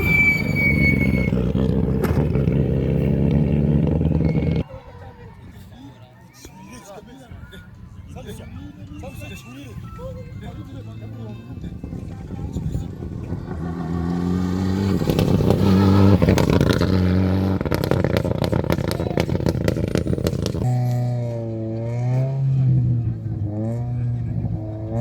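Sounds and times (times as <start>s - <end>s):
rally car engine revving: 0.0s - 4.6s, 12.9s - 25.0s.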